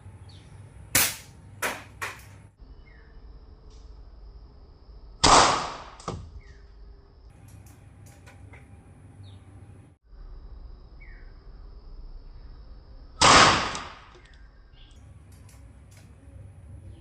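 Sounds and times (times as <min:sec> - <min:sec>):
air rifle shot: 0:00.9 - 0:01.9, 0:05.2 - 0:06.1, 0:13.2 - 0:14.2.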